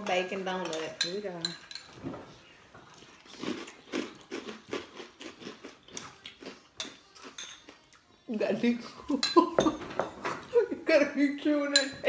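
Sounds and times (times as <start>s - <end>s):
crunchy cereal being chewed: 2.9s - 8.1s.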